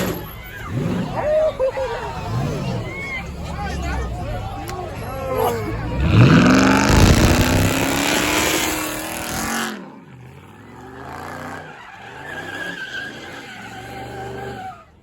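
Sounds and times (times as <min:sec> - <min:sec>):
car engine at full throttle: 0:00.0 - 0:11.7
tyres squealing: 0:10.8 - 0:14.8.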